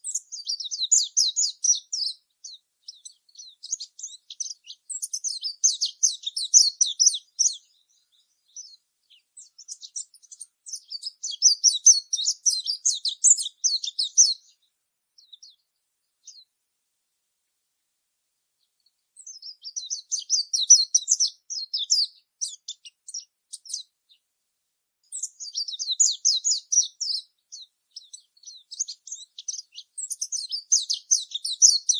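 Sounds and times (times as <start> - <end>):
songbirds twittering: 0.0 - 16.6, 18.6 - 24.3, 25.0 - 31.9.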